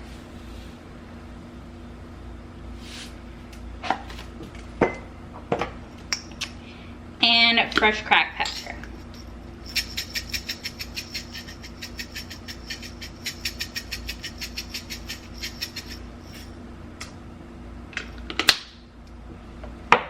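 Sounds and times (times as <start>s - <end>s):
pepper grinder clicking: 9.6s - 16.5s.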